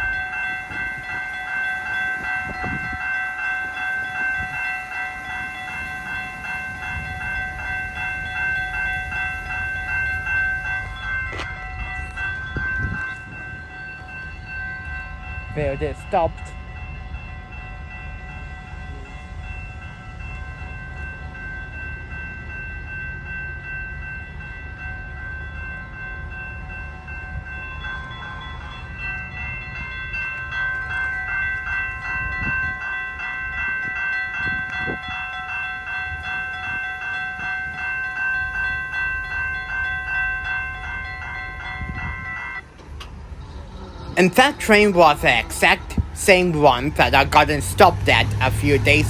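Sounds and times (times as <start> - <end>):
crossing bells ringing: 0.0 - 43.3, 44.2 - 49.0
locomotive idling: 44.2 - 49.0.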